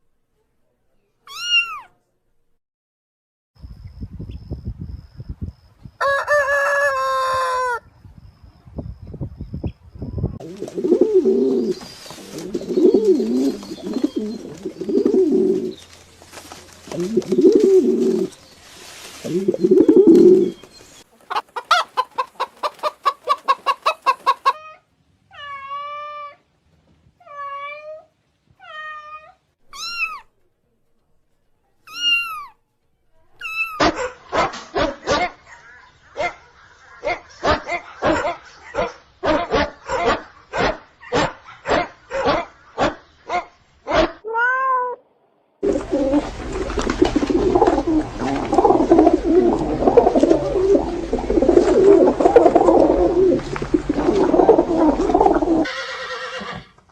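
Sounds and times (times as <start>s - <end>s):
animal clucking and calling: 10.4s - 15.8s, 16.9s - 18.4s, 19.2s - 24.8s, 45.6s - 56.7s.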